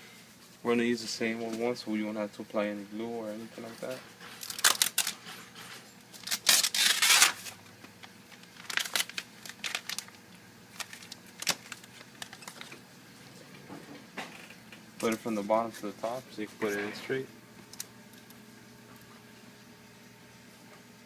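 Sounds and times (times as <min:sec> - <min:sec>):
crinkling rustle: 0:03.6 - 0:12.8.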